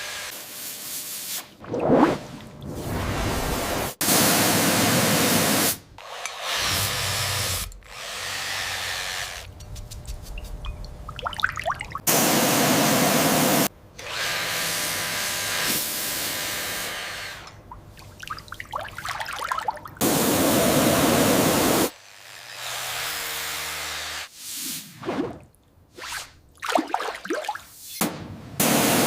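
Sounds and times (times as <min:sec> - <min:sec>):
small power tool motor: 0:06.0 - 0:09.5.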